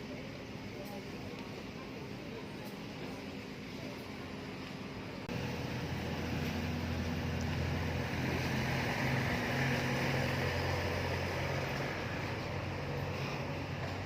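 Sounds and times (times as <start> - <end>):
travel noise: 0.0 - 14.0
vehicle engine droning: 5.2 - 14.0.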